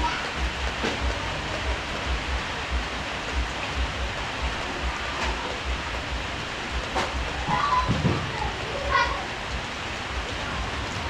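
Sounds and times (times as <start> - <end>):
low repeated thudding: 0.0 - 8.5
heavy rain hissing: 0.0 - 11.0.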